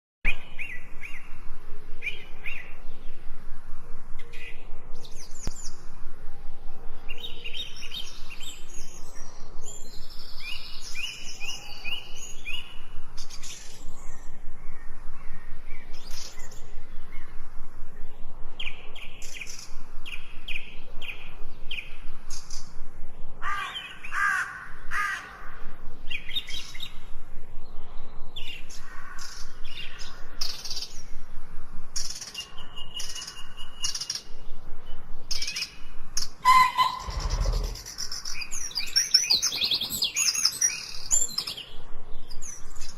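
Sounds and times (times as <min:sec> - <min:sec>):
birds chirping and trilling: 0:00.3 - 0:42.9
low-pitched bird calls: 0:36.2 - 0:41.6.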